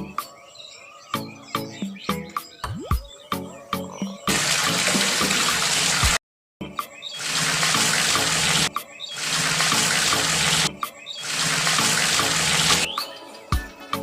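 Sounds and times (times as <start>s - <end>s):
water pouring: 4.3s - 6.2s, 7.2s - 12.9s.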